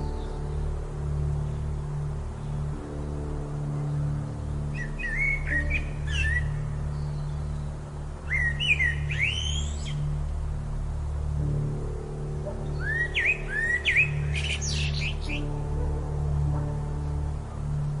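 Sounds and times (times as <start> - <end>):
ambient music drone: 0.0 - 18.0
songbird chirping: 0.0 - 18.0.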